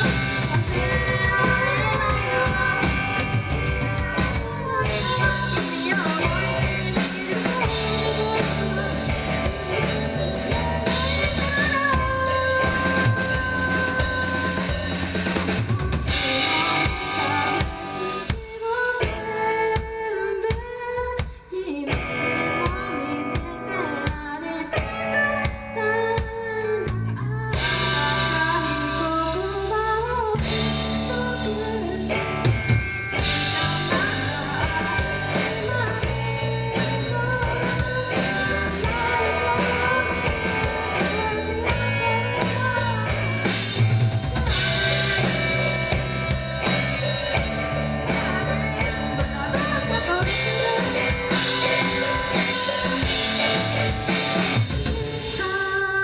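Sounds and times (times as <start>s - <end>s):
bass guitar: 0.0s - 20.1s, 21.9s - 55.6s
drum kit: 0.0s - 56.0s
electric guitar: 0.0s - 56.0s.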